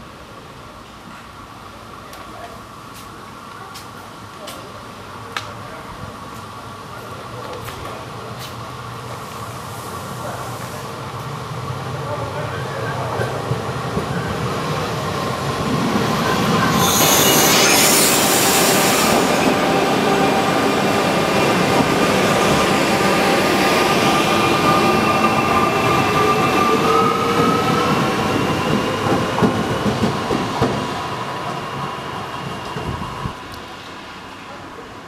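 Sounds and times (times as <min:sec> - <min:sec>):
train running slowly past: 0:00.0 - 0:35.0
whining tones: 0:16.0 - 0:20.7
wheel squeal: 0:16.2 - 0:19.5
high hissing: 0:16.2 - 0:21.0.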